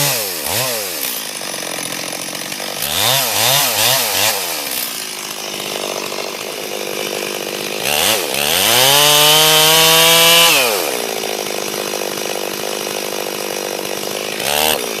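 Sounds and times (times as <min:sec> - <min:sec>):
chainsaw idling and revving: 0:00.0 - 0:15.0.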